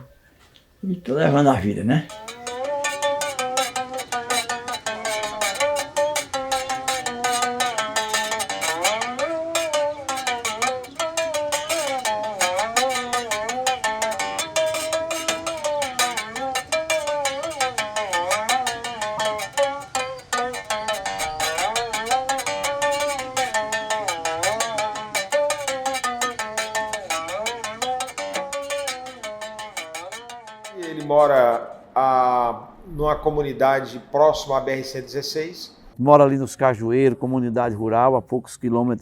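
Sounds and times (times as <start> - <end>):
berimbau playing: 1.2 - 32.4.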